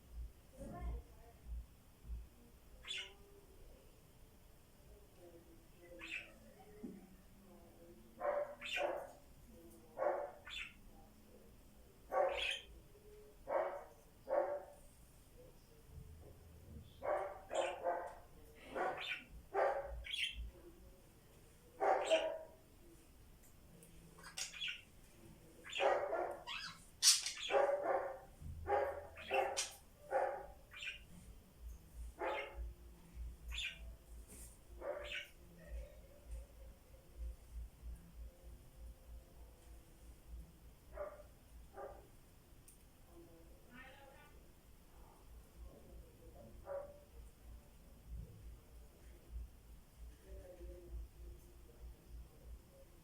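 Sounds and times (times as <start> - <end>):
harsh bird calls: 5.9 - 6.4, 10.3 - 10.8, 12.2 - 12.8, 18.7 - 20.5, 33.5 - 33.9
dog barking: 8.2 - 9.2, 10.0 - 10.4, 12.1 - 12.6, 13.5 - 14.7, 17.0 - 20.0, 21.8 - 22.6, 25.7 - 26.5, 27.4 - 30.6, 32.2 - 32.6, 34.8 - 35.2, 40.9 - 42.1.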